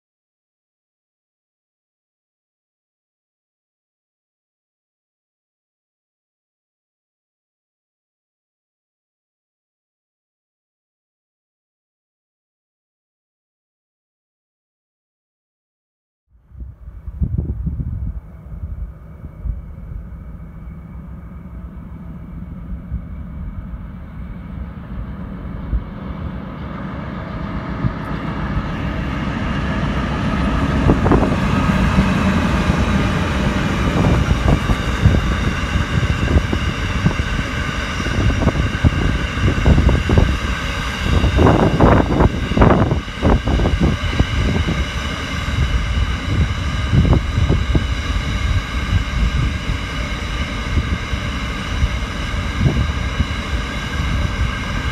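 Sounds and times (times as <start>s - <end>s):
diesel locomotive engines: 16.4s - 54.9s.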